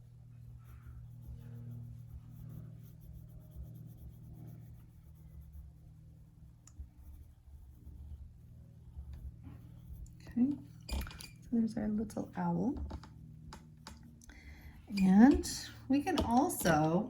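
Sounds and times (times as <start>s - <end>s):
low hum: 0.0s - 17.0s
pencil scratching on paper: 0.1s - 10.9s.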